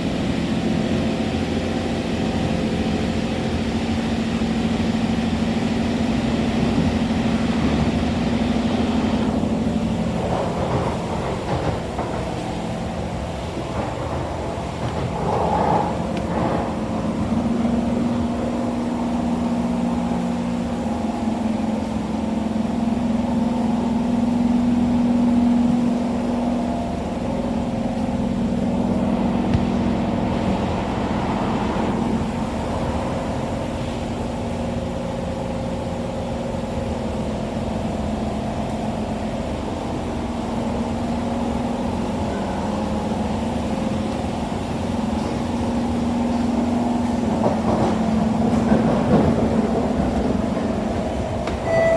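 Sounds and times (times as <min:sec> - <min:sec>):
train wheels rumbling on rail: 0:00.0 - 0:51.9
droning hum of held tones: 0:51.4 - 0:51.9.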